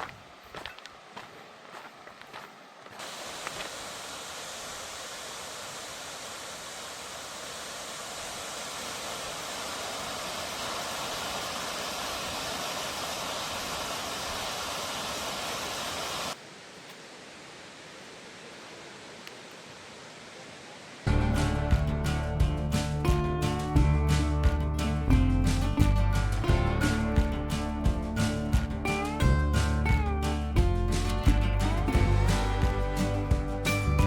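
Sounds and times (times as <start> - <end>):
waterfall roaring: 2.9 - 16.4.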